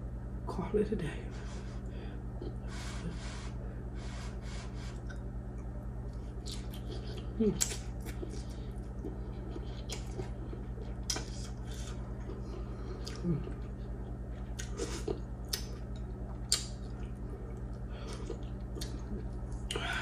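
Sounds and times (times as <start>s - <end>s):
steady low hum: 0.0s - 20.0s
chewing clicks: 5.0s - 13.2s, 14.5s - 19.7s
wet mouth smacks eating: 6.4s - 12.0s, 14.5s - 15.8s, 16.4s - 17.0s.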